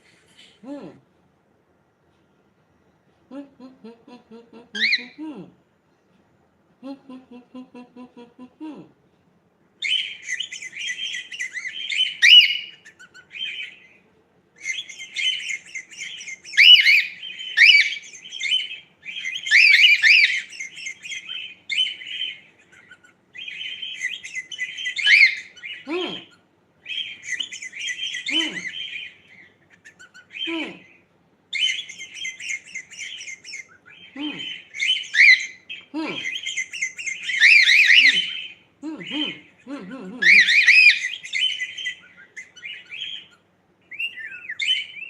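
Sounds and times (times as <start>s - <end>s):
cockatiel chirping: 9.8s - 14.0s, 14.6s - 25.8s, 26.8s - 30.5s, 31.5s - 38.6s, 40.2s - 45.0s.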